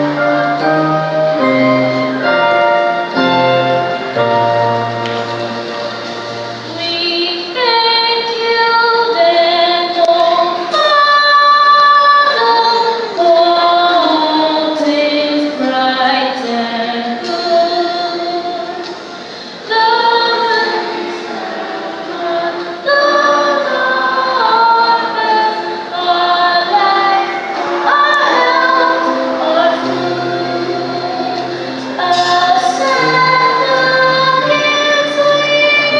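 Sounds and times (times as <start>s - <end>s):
instrumental accompaniment: 0.0s - 35.9s
choir singing: 19.6s - 35.9s.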